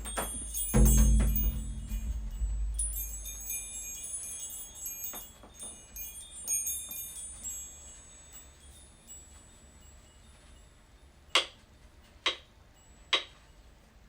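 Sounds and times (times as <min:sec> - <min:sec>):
deep drum ring: 0:00.0 - 0:04.2
chimes tinkling: 0:00.0 - 0:11.4.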